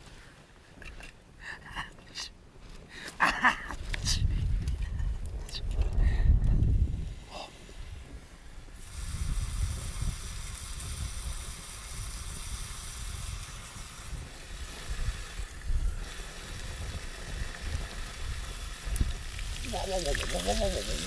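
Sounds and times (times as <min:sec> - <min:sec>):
wind noise on microphone: 0:02.6 - 0:21.0
food sizzling in a frying pan: 0:08.8 - 0:21.0.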